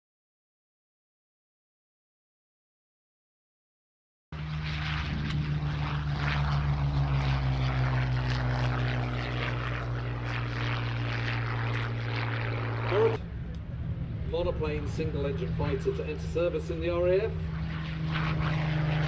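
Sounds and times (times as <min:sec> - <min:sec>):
propeller plane engine drone: 0:04.4 - 0:19.0.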